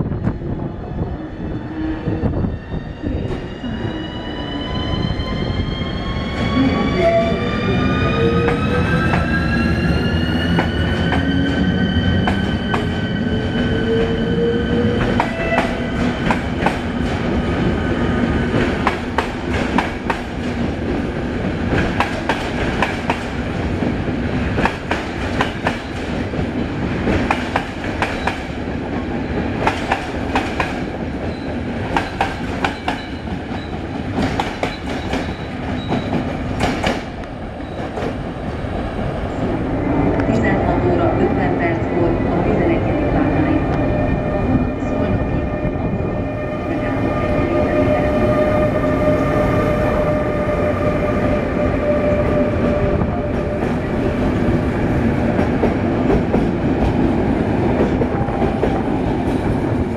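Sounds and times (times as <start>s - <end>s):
locomotive whine: 0.0s - 18.8s, 31.1s - 56.6s
train rumble: 0.0s - 59.9s.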